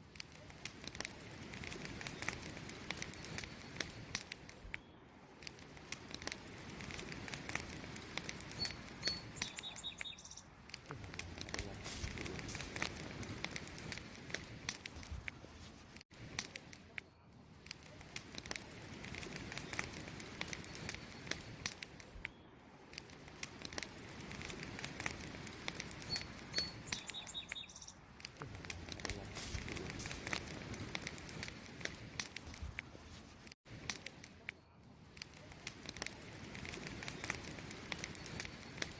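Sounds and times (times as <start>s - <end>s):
campfire crackling and popping: 0.0s - 38.9s
high chirps: 8.4s - 13.0s, 25.9s - 28.1s.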